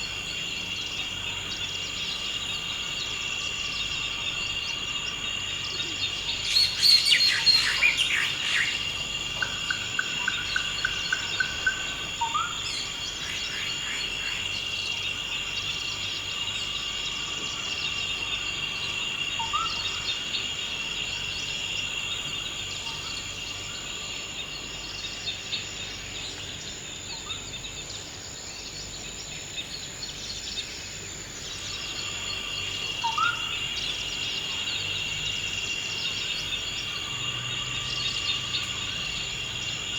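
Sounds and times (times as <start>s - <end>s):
birds calling: 0.0s - 15.2s
insect drone: 0.0s - 39.9s.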